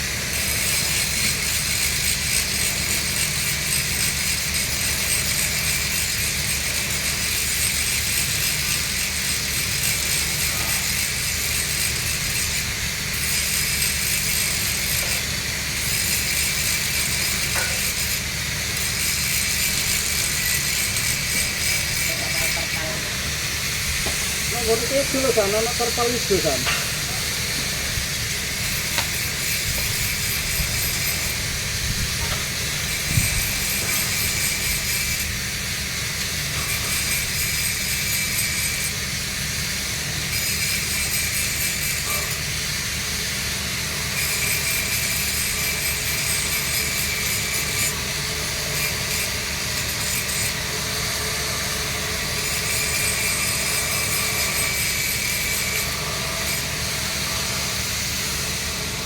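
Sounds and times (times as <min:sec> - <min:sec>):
welding arc hissing: 0:00.0 - 0:59.0.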